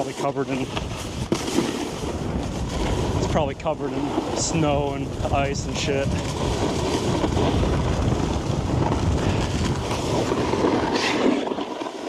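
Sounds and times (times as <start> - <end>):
wind rushing over microphone: 0.0 - 11.8
snowboard sliding over snow: 0.0 - 12.0.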